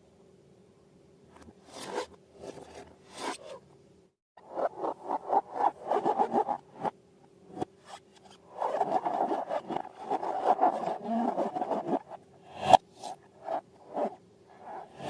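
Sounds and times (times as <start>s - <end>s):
hands rubbing balloons and slime: 8.6s - 12.8s.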